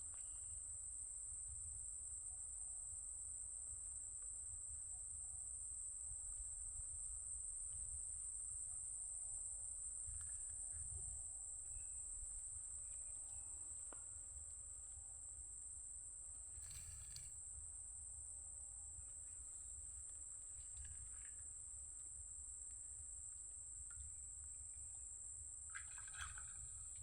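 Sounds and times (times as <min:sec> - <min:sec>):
insects trilling: 0:16.3 - 0:18.1.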